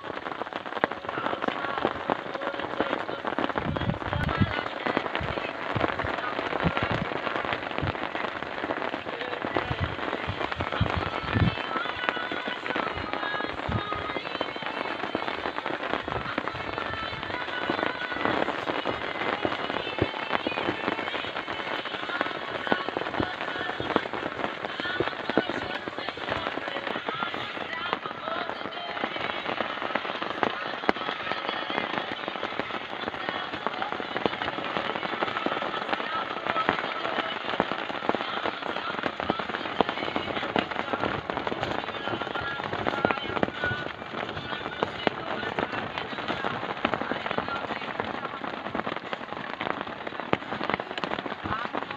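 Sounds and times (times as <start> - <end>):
heavy rain falling: 0.0 - 51.9.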